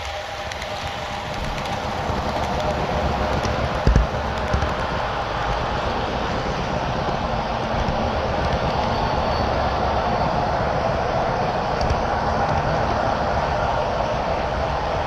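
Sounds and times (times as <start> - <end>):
model train rolling rumble: 0.0 - 15.0.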